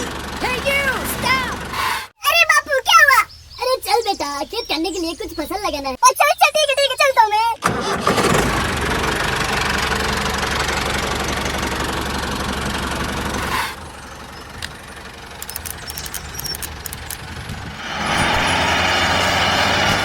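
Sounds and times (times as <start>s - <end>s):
tractor engine running: 0.0s - 2.1s, 7.6s - 20.0s.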